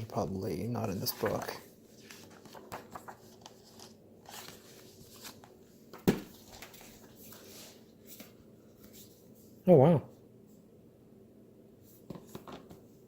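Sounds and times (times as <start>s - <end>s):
paper rustling and clicks: 1.0s - 7.4s.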